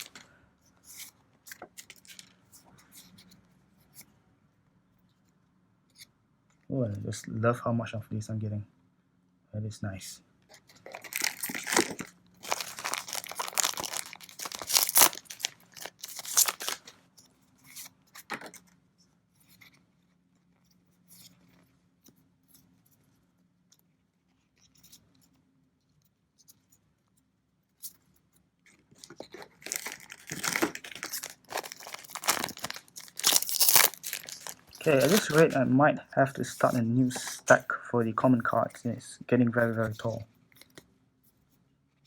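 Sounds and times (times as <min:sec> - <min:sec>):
foil packs tearing and crinkling: 0:00.0 - 0:00.2, 0:10.8 - 0:16.9, 0:29.4 - 0:35.6.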